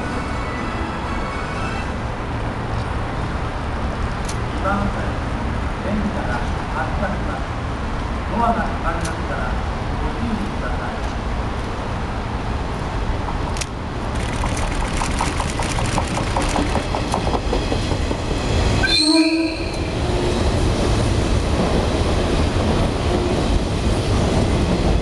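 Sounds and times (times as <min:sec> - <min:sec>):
electric train passing: 0:11.8 - 0:25.0
wheels clattering over rail joints: 0:14.0 - 0:18.4
train horn blast: 0:18.8 - 0:19.9.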